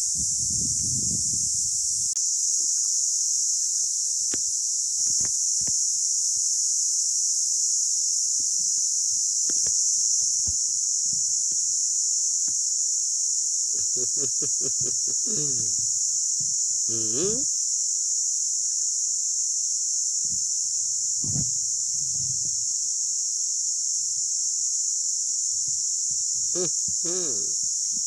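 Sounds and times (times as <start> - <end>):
steady high-pitched hiss: 0.0 - 28.0
brief voice-like sound: 16.9 - 17.4, 26.6 - 27.6.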